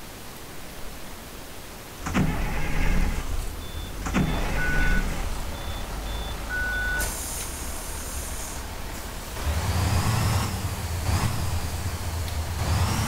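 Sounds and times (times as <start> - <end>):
bus engine idling: 2.0 - 13.0
air brakes hissing: 2.1 - 12.0
short electronic beeps: 3.5 - 7.1.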